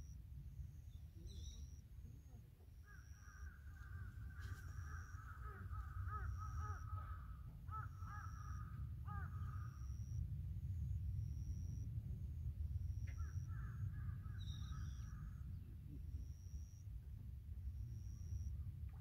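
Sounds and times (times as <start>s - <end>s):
faint high peep: 0.0s - 19.0s
steady low rumble: 0.0s - 19.0s
distant harsh bird calls: 2.8s - 10.2s, 13.0s - 15.6s.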